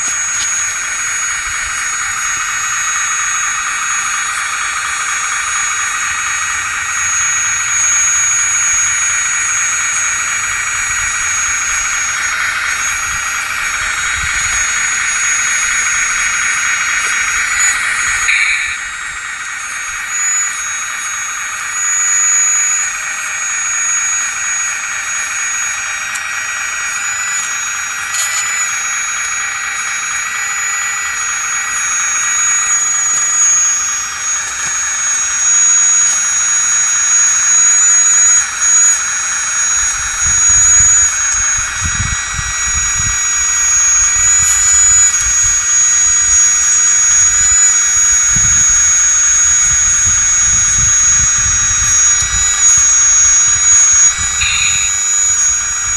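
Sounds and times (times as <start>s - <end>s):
hydraulic pump whine: 0.0s - 55.9s.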